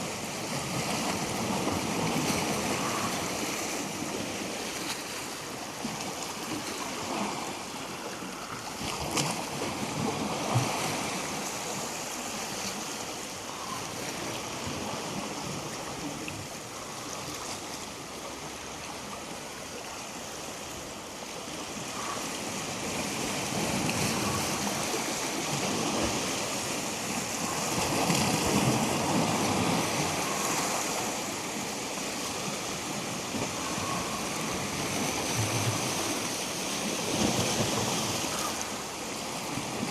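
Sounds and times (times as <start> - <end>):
waves washing onto shore: 0.0 - 39.9.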